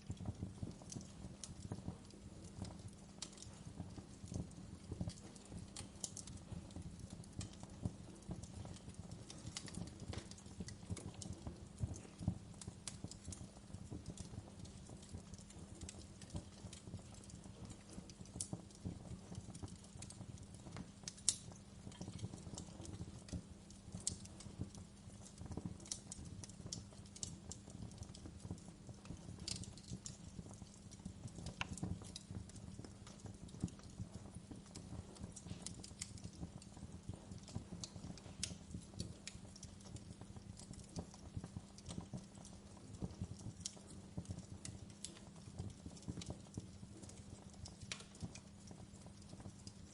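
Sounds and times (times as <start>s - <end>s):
low rumble of burning: 0.0s - 49.9s
wood fire popping and snapping: 0.0s - 49.9s.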